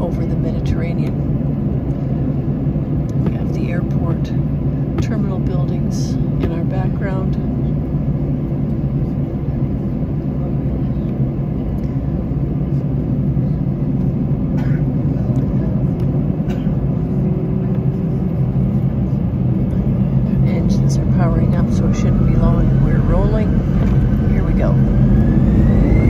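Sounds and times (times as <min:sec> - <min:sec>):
jet engines idling drone: 0:00.0 - 0:26.0.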